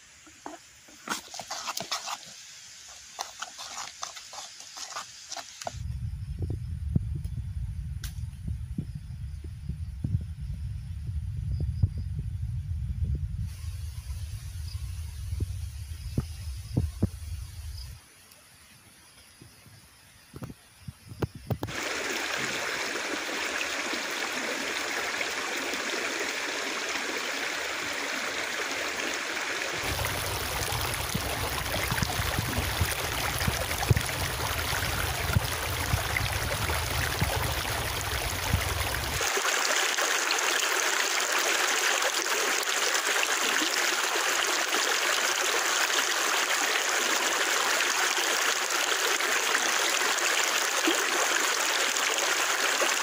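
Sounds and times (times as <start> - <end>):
river rushing: 21.7 - 34.6.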